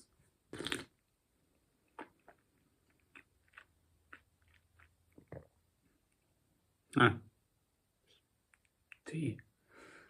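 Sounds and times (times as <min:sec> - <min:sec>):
person sipping tea: 0:00.5 - 0:00.9.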